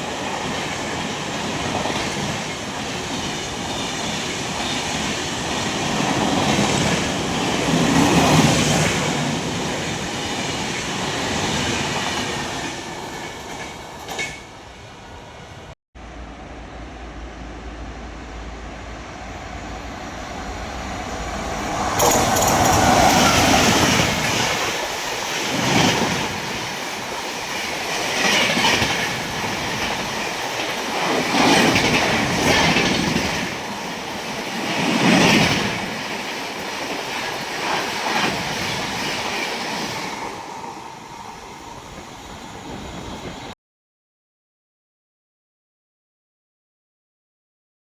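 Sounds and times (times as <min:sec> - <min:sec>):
train wheels click-clacking: 0:00.0 - 0:14.6, 0:21.7 - 0:43.5
train rumble passing: 0:00.0 - 0:43.6.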